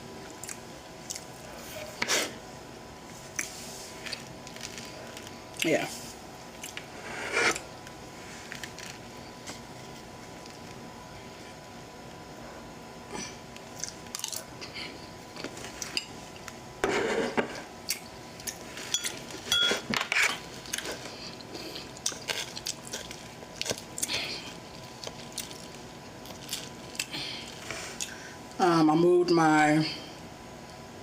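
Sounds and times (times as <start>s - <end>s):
crunching and chewing food: 0.2s - 1.7s, 3.3s - 5.8s, 6.5s - 10.8s, 13.5s - 16.5s, 17.8s - 28.2s.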